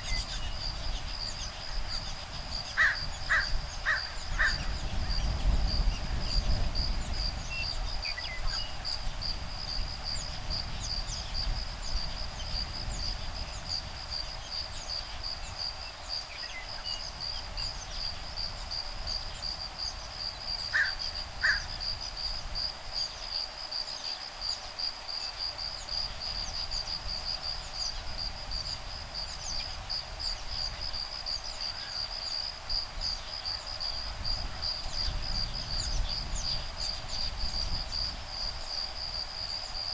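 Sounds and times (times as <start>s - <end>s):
bird calls: 0.0s - 5.1s, 20.7s - 21.8s
low wind rumble: 0.0s - 23.1s, 25.8s - 39.9s
insects trilling: 0.0s - 39.9s.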